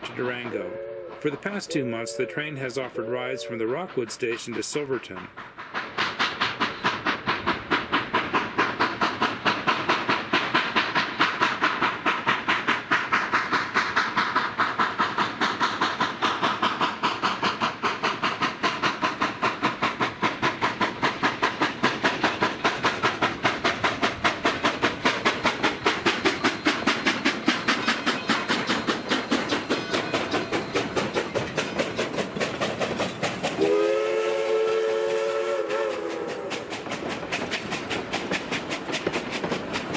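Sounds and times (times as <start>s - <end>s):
steam locomotive chuffing: 0.0s - 39.9s
steam whistle blast: 0.6s - 1.2s, 1.8s - 2.4s, 33.6s - 36.5s.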